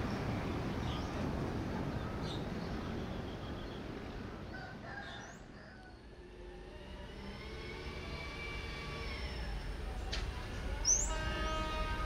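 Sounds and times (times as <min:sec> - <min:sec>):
passenger train rumble: 0:00.0 - 0:04.8, 0:05.4 - 0:12.0
faint rooster crowing: 0:04.5 - 0:06.2.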